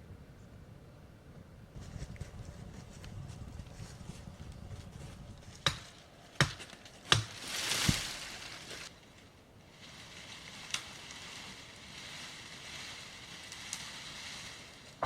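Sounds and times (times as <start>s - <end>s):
rustling swish with dull thud: 7.1s - 8.9s.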